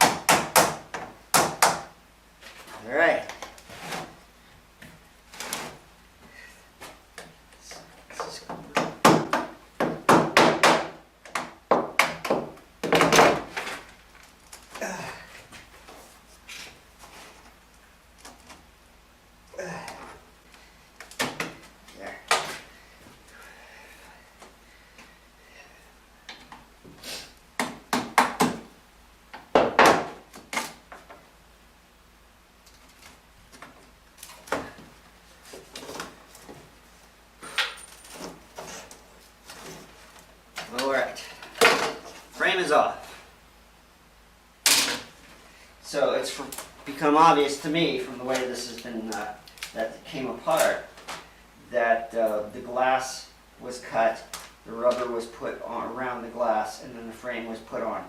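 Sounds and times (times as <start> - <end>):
knocks and bangs on window frame: 0.0 - 1.9, 8.6 - 13.5, 29.5 - 30.2.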